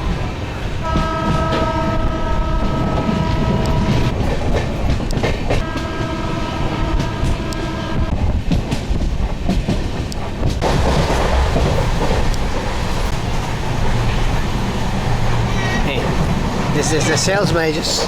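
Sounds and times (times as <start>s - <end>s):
rail clicks: 0.0s - 18.0s
train rumbling: 0.0s - 18.0s
train horn: 0.8s - 4.2s, 5.6s - 8.4s.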